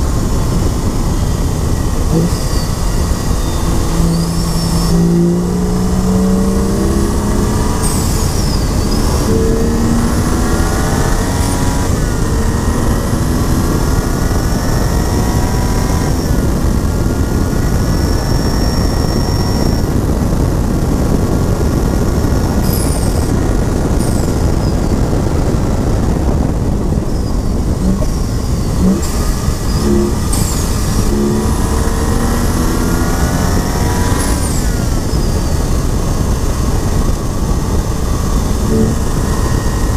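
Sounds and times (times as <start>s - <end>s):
car engine accelerating through gears: 0.0s - 39.9s
road and wind noise: 0.0s - 39.9s.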